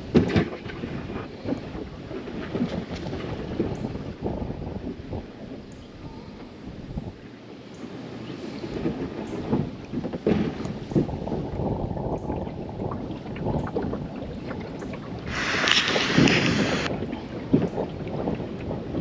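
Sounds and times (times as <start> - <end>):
water splashing around kayak: 0.0 - 19.0
wind rumbling on microphone: 0.0 - 19.0
loud hiss: 15.3 - 16.9.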